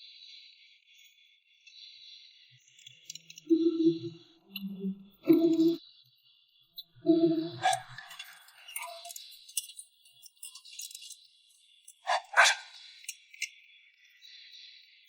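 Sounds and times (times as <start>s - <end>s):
dog barking: 7.3s - 8.2s, 12.1s - 12.8s.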